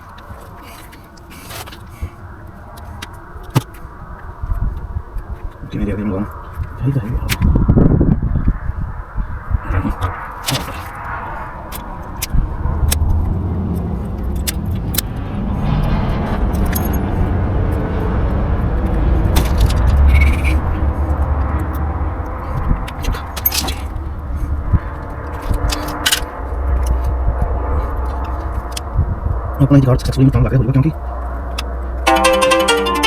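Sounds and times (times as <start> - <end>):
vehicle engine rumble: 0.0 - 32.1.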